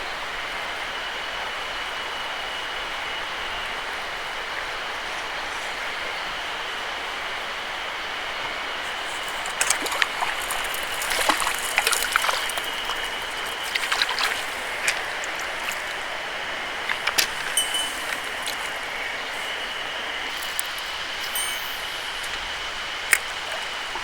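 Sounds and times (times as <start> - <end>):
mountain stream rushing: 2.5 - 24.0
faint high tone: 17.5 - 18.8, 21.2 - 22.4.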